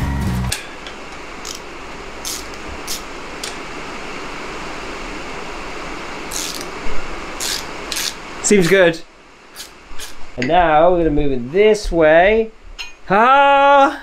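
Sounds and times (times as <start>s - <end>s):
rain on a roof: 1.0s - 8.6s
metal parts scraping: 2.2s - 3.0s, 6.3s - 6.7s, 7.4s - 8.8s, 9.6s - 10.2s.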